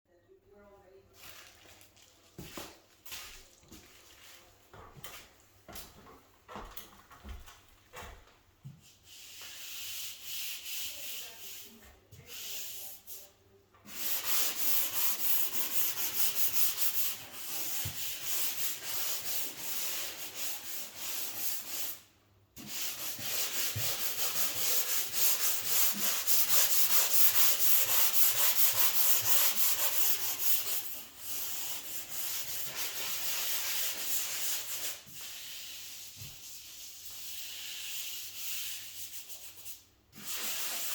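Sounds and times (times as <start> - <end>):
sanding sponge rubbing ceiling: 8.8 - 40.9.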